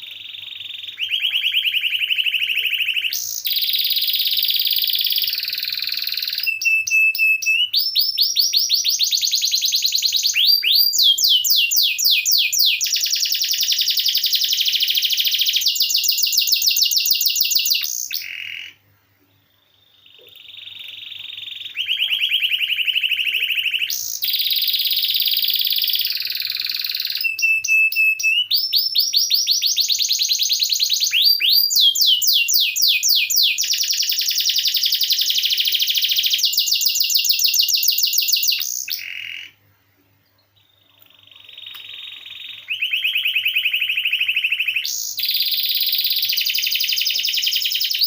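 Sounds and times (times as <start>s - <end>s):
canary singing trills: 0.0s - 18.8s, 19.5s - 39.6s, 40.3s - 48.0s.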